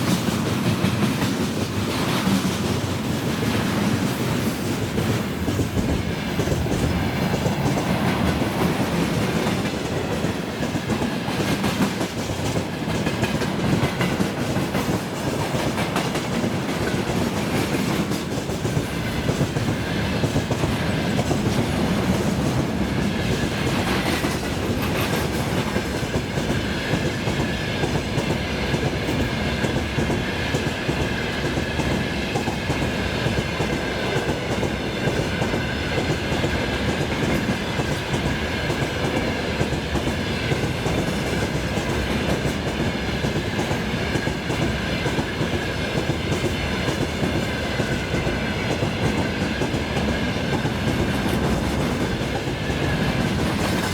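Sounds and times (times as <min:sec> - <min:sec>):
freight train wheels clattering on rails: 0:00.0 - 0:53.9.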